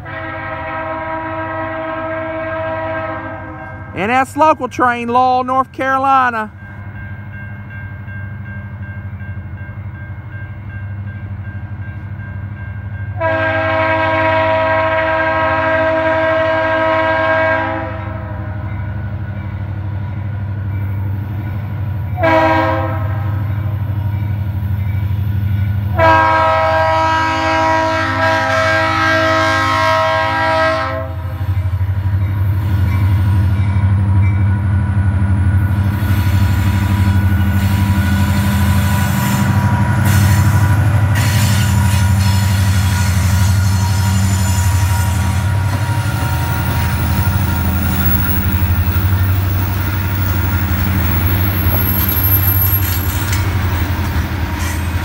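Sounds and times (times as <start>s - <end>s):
train air horn: 0.0s - 4.1s, 13.2s - 18.5s, 22.2s - 23.7s, 25.9s - 31.6s, 35.8s - 53.8s
freight cars rumbling on rails: 17.8s - 55.0s.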